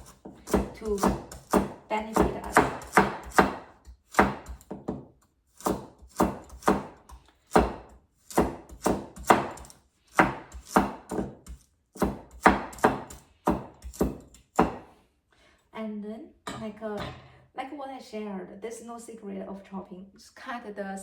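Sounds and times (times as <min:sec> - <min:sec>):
knife chopping on cutting board: 0:00.0 - 0:14.9.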